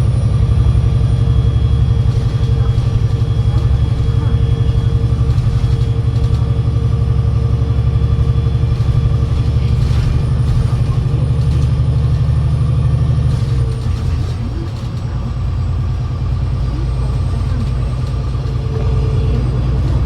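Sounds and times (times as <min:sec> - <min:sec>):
bus engine rumble: 0:00.0 - 0:20.0
gearbox whine: 0:17.1 - 0:20.0.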